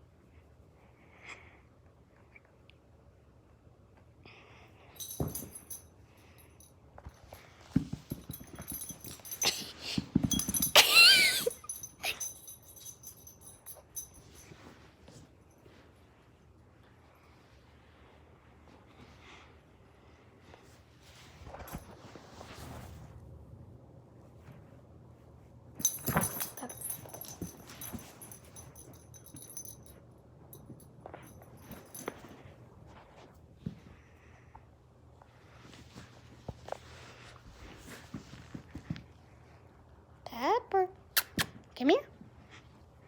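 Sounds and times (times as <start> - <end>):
collar tags jingling: 5.0 - 14.7, 25.8 - 32.4.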